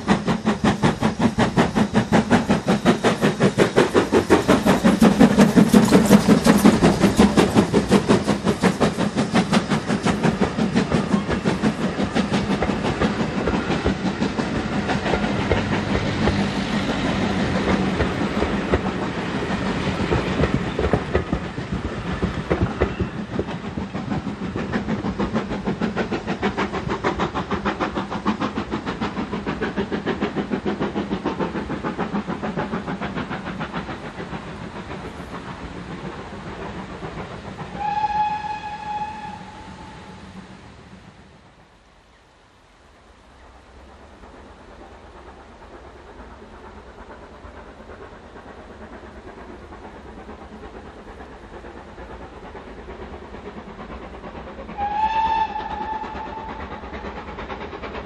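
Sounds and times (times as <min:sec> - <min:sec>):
train wheels clicking over rail joints: 0:00.0 - 0:40.6, 0:43.1 - 0:58.0
distant locomotive whistle: 0:37.7 - 0:40.3, 0:54.8 - 0:56.9.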